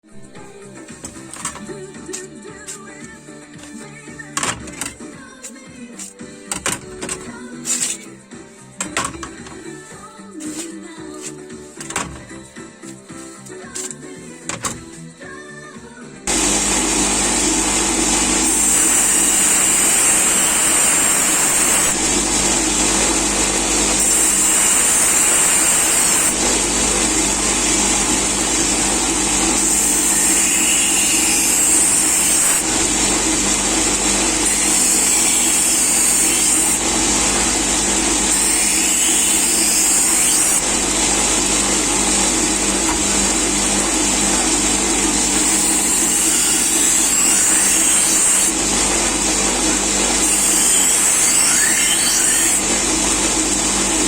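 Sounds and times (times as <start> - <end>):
electric grinder running: 16.3 - 54.0
knife blade hissing on grinder: 23.8 - 26.6, 27.7 - 32.7, 34.1 - 36.8.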